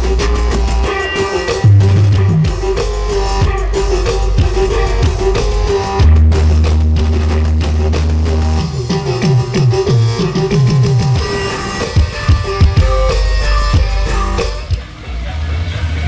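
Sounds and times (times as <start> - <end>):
loud music with guitar and drums: 0.0 - 14.8
deep bass note: 1.6 - 8.0.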